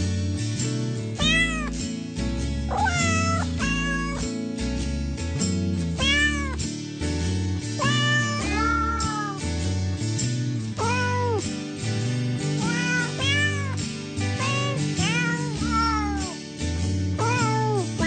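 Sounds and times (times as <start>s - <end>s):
cat meowing: 1.2s - 1.8s, 2.7s - 4.3s, 6.0s - 6.6s, 7.8s - 9.4s, 10.8s - 11.4s, 12.6s - 13.8s, 14.4s - 16.4s, 17.2s - 18.0s.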